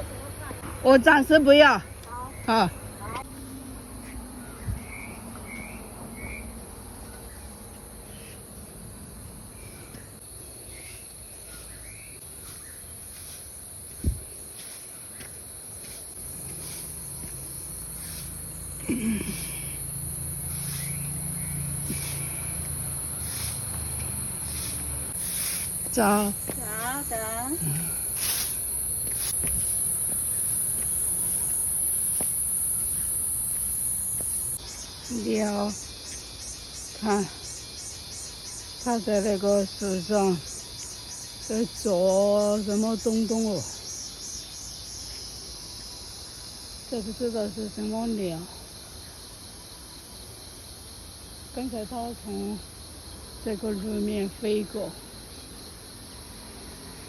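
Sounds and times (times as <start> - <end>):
insects droning: 0.0 - 57.0
insects shrilling: 15.8 - 35.8
bird chirps: 20.5 - 28.4.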